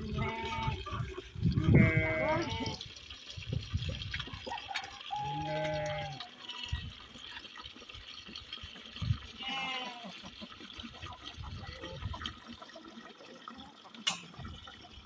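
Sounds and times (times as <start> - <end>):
trickling water: 0.0 - 15.0
livestock bleating: 0.1 - 0.8, 1.6 - 2.8, 5.2 - 6.7, 9.4 - 10.1.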